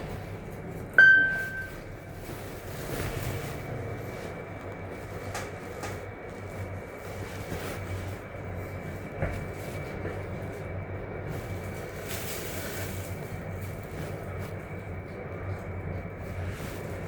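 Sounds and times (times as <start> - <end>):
faint high whine: 1.0 - 2.0.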